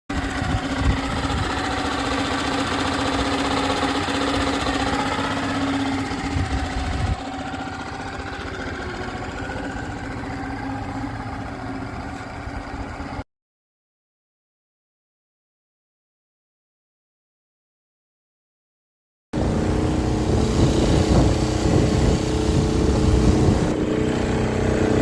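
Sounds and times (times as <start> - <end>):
outboard motor running: 0.1 - 13.2, 19.4 - 25.0.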